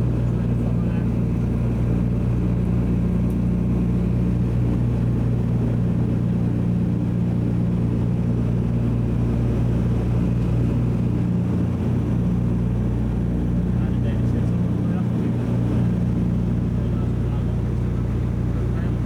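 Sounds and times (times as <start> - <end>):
radial piston engines droning: 8.4 - 19.0.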